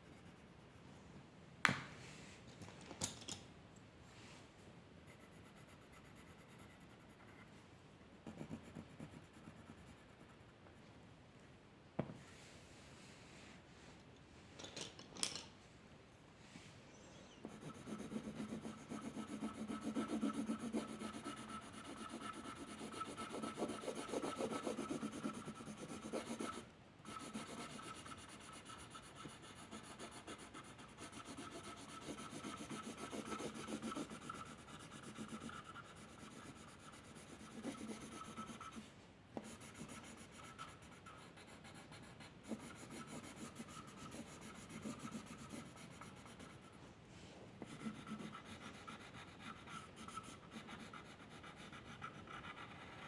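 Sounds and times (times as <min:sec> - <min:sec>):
pencil scratching on paper: 0:05.1 - 0:07.6, 0:17.4 - 0:46.8, 0:47.6 - 0:53.0.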